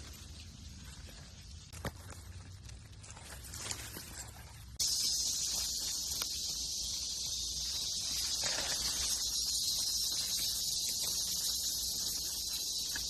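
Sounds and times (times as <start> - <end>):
rustling of leaves: 0.0 - 13.0
high-pitched insect chorus: 4.8 - 13.0.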